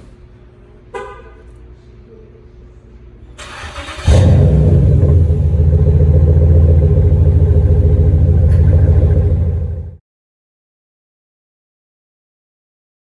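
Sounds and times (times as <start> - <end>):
car engine starting: 3.4 - 10.0
deep pulsing engine idle: 3.8 - 10.0.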